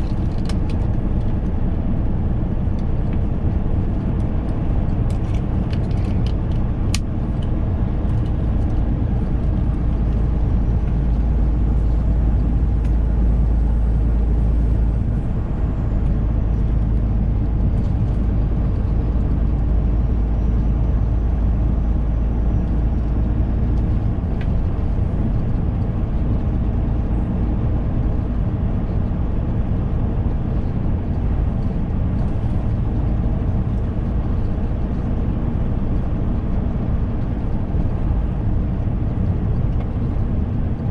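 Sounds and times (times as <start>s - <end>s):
road noise: 0.0s - 40.9s
truck diesel engine droning: 0.0s - 40.9s.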